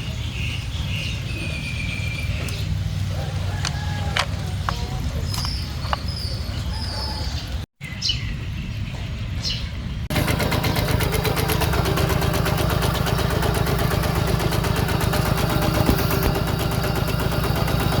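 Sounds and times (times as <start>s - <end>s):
small diesel engine running: 10.1s - 18.0s.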